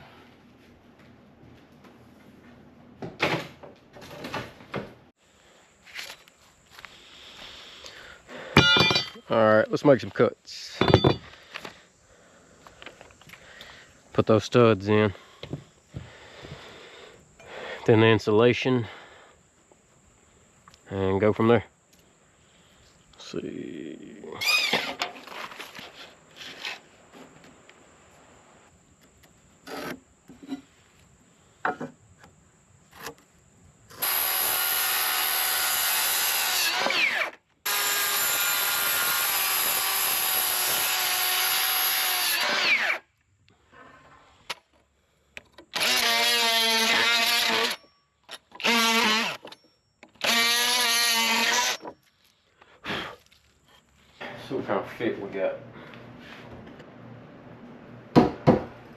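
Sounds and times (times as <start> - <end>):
electric power saw cutting wood: 33.9 - 43.0, 45.7 - 47.8, 48.6 - 49.6, 50.2 - 51.9
knocks of handling lumber: 58.1 - 58.8.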